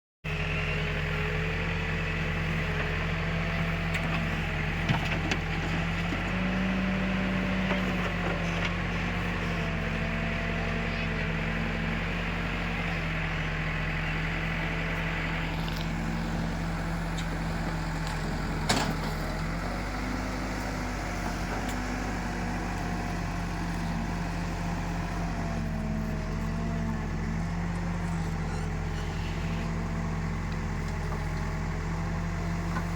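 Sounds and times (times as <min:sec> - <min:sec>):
backhoe diesel engine running: 0:00.3 - 0:32.9.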